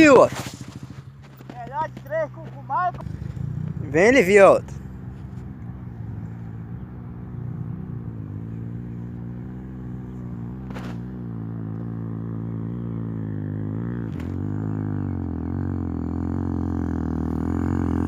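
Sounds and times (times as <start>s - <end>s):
dirt bike engine climbing: 0.0s - 18.0s
short sharp crack: 10.6s - 11.1s.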